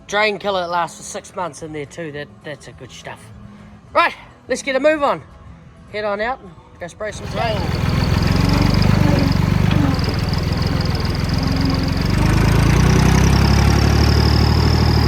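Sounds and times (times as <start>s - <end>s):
tractor engine running: 7.1s - 15.0s.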